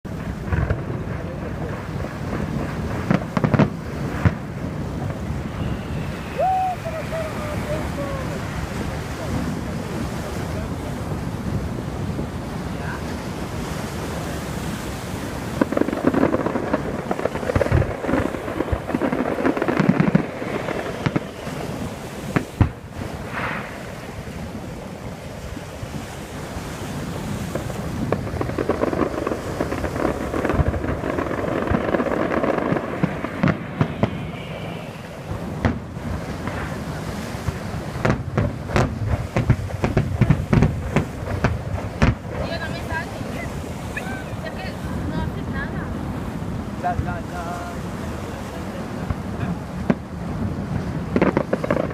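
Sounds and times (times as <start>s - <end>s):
fireworks bangs and crackle: 0.0s - 51.9s
firework whistle: 5.2s - 8.8s, 17.2s - 24.2s, 31.8s - 38.2s.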